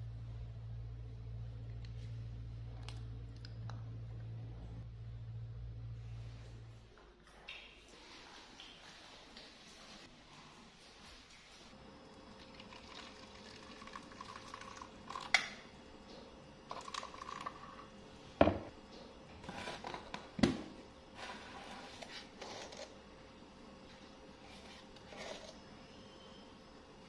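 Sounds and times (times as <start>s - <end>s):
tin and jug knocking on countertop: 18.4s - 18.7s.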